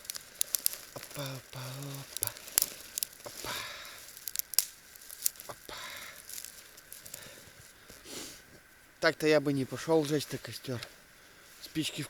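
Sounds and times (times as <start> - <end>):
twigs snapping: 0.0 - 8.0
brushwood rustling: 0.0 - 9.0.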